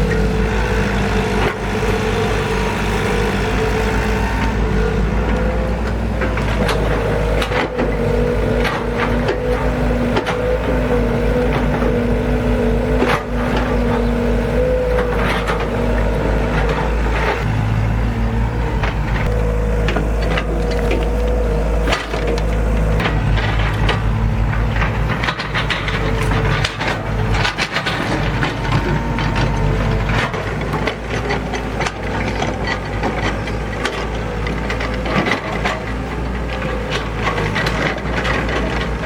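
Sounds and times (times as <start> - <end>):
engine whine: 0.0 - 39.0
excavator diesel engine running: 0.0 - 39.0
metal clanks and knocks: 12.8 - 39.0.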